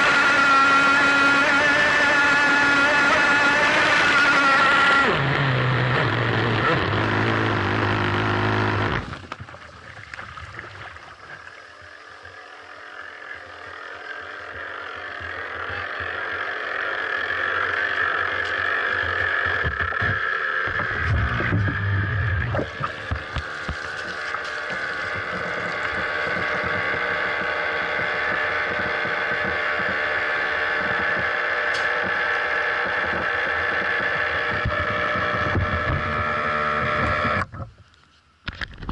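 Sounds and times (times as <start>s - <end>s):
model boat motor running: 0.0s - 37.7s
water washing around hull: 8.9s - 16.5s, 19.0s - 36.4s.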